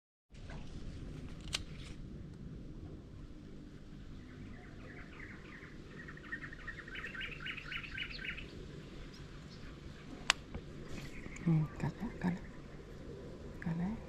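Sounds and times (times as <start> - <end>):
low background hum: 0.3 - 14.0
small bird chirping: 4.0 - 14.0.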